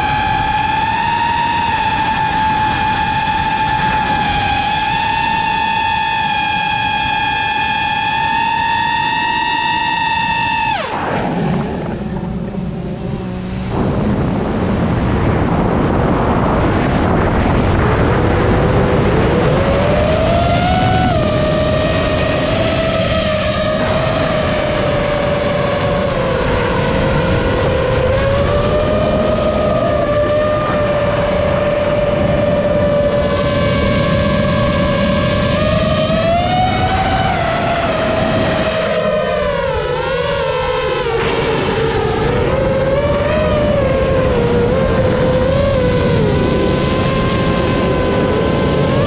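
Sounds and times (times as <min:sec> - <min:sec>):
drone motors whining: 0:00.0 - 0:49.0
wind noise: 0:00.0 - 0:49.0
rush of air: 0:10.7 - 0:19.9.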